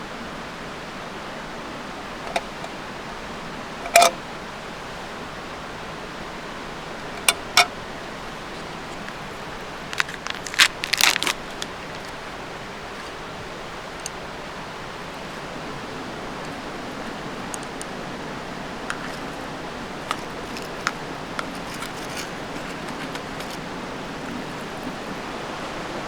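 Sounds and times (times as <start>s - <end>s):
steady background hiss: 0.0s - 26.0s
sharp clicks and knocks: 2.3s - 2.7s, 3.9s - 4.2s, 7.2s - 7.7s.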